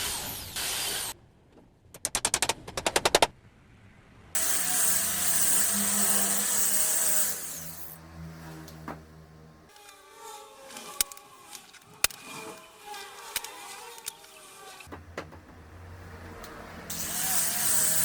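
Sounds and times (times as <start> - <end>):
power tool running: 4.4 - 8.8, 9.7 - 14.9, 16.9 - 18.0.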